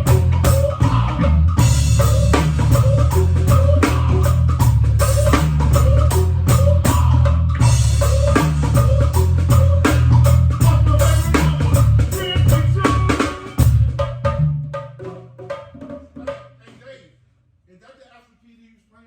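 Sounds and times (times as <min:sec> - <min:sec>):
heavy low bass line: 0:00.0 - 0:14.0
drum kit beat: 0:00.0 - 0:16.8.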